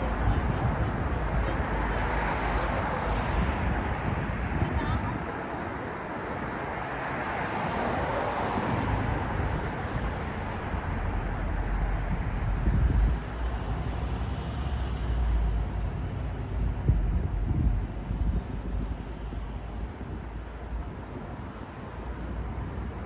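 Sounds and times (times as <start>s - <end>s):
low engine rumble: 0.0s - 5.6s, 8.7s - 23.0s.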